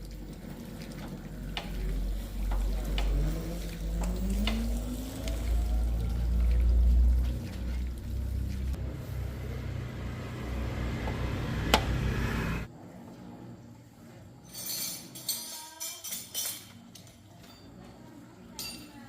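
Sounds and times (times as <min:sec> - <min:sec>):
vehicle engine rumbling low: 0:00.0 - 0:12.7.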